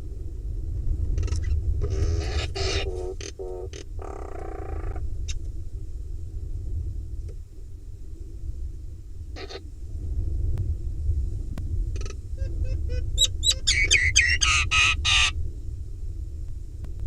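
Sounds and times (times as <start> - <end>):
low steady hum: 0.0 - 17.0
myna calling: 1.2 - 5.0, 12.4 - 15.4.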